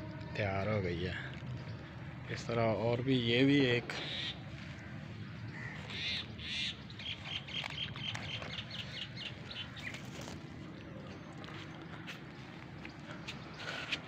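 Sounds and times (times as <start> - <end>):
high bird calls: 3.9 - 14.0.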